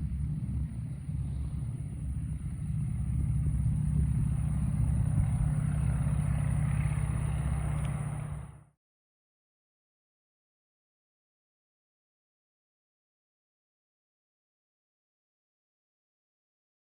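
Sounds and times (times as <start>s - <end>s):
propeller plane engine running: 0.0s - 8.8s.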